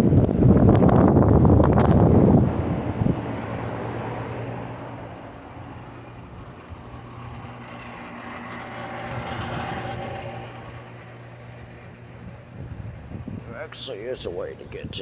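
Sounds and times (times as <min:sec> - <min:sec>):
air conditioner humming: 0:05.1 - 0:15.0.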